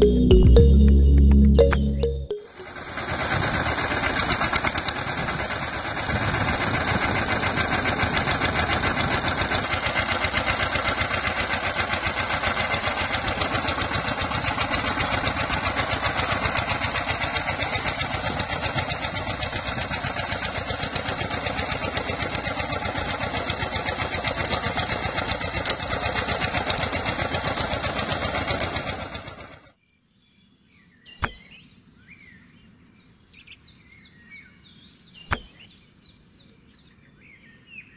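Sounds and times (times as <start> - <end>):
sharp click: 31.2 - 31.5, 35.3 - 35.6.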